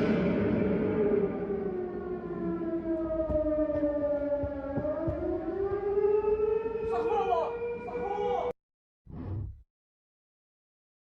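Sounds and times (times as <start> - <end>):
air-raid siren wailing: 0.0 - 8.6.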